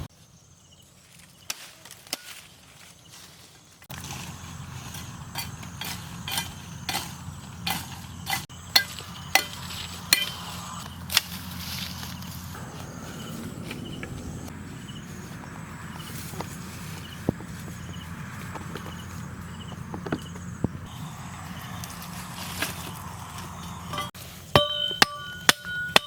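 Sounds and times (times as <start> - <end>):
steady low rumble: 8.4 - 24.2.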